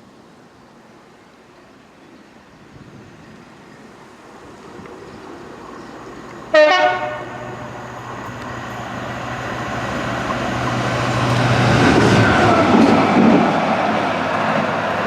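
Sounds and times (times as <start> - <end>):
approaching train rail noise: 0.0 - 15.0
train horn blast: 6.5 - 7.7.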